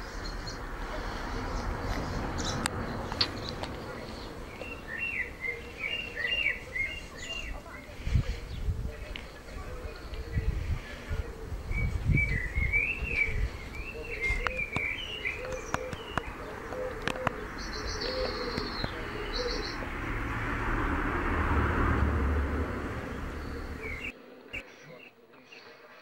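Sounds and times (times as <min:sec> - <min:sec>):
low repeated bird call: 0:00.0 - 0:08.7, 0:09.8 - 0:20.9, 0:22.2 - 0:25.2
warbling bird song: 0:00.0 - 0:20.8, 0:22.3 - 0:25.6
birds chirping and calling: 0:00.0 - 0:25.8
rushing noise: 0:19.0 - 0:24.1.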